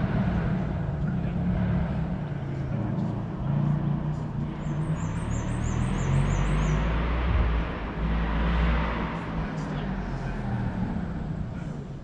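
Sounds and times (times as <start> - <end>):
car engine running: 0.0 - 12.0
bird chirping: 4.6 - 7.0.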